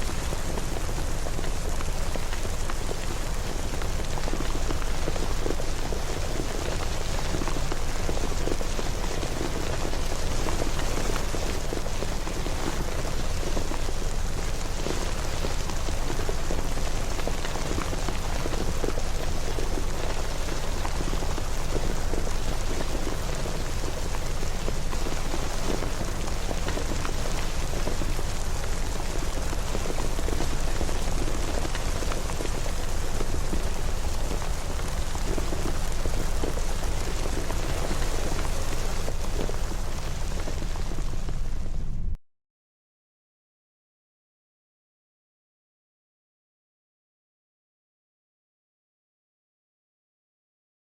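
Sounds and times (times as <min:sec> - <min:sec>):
steady rain falling: 0:00.0 - 0:42.1
low rumble: 0:41.2 - 0:42.2.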